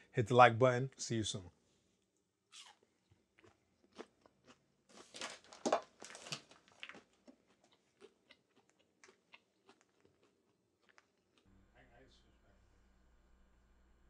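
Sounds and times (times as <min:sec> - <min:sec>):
man crunching crispy food: 0:02.5 - 0:11.5.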